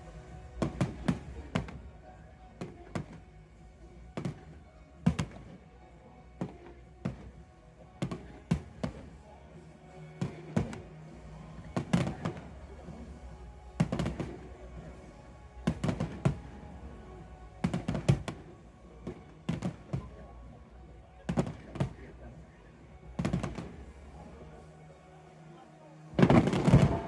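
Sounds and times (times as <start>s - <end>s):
fireworks bursting: 0.0s - 3.5s, 4.1s - 5.7s, 8.0s - 9.2s, 10.1s - 22.2s, 23.1s - 24.2s, 26.2s - 27.0s
music playing: 0.0s - 27.0s.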